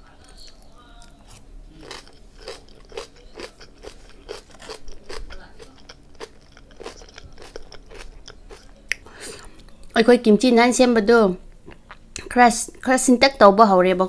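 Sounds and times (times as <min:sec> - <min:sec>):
person chewing crunchy food: 0:00.2 - 0:09.9, 0:11.5 - 0:12.1.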